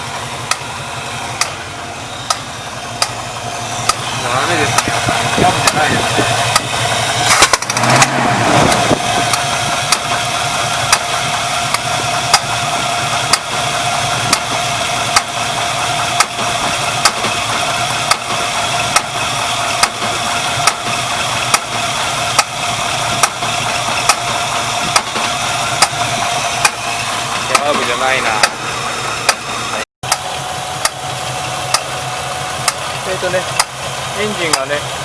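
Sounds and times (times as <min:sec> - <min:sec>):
car engine idling: 0:00.0 - 0:35.0
sharp engine pops: 0:04.7 - 0:10.2, 0:16.2 - 0:19.2, 0:19.8 - 0:22.6, 0:23.2 - 0:26.0.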